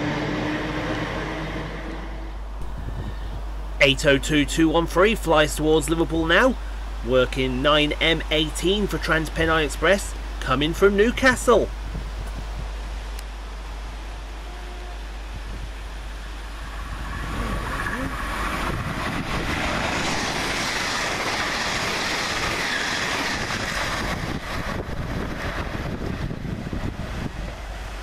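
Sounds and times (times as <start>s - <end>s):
train passing at speed: 0.0s - 4.3s, 11.3s - 28.0s.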